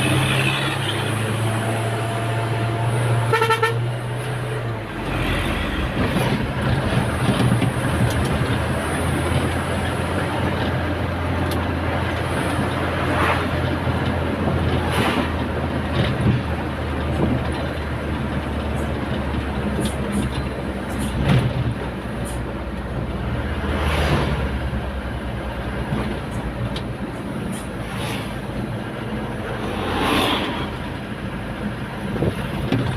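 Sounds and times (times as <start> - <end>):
road noise: 0.0 - 32.9
wind noise: 31.9 - 32.9.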